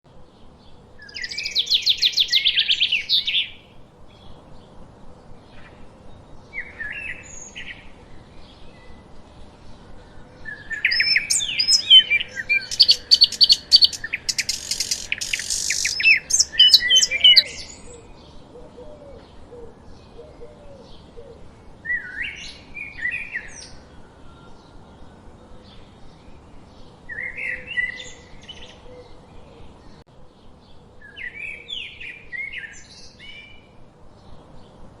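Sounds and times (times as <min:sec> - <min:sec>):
faint steady hiss: 0:00.1 - 0:35.0
songbirds singing and chirping: 0:00.1 - 0:35.0.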